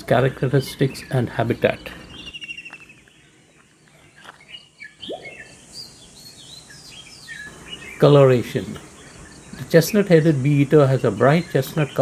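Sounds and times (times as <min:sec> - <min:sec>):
wild birds chirping: 0:00.0 - 0:12.0
low upward-gliding bird note: 0:05.0 - 0:05.6.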